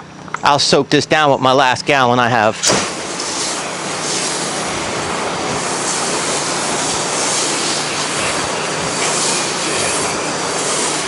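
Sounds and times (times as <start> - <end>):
pressure washer spray hissing: 2.6 - 11.0.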